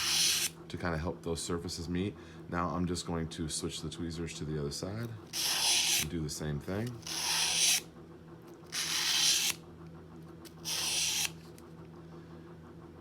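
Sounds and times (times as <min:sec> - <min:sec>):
metal scraping on sandpaper: 0:00.0 - 0:00.5, 0:05.4 - 0:06.1, 0:06.8 - 0:07.8, 0:08.7 - 0:09.6, 0:10.6 - 0:11.4.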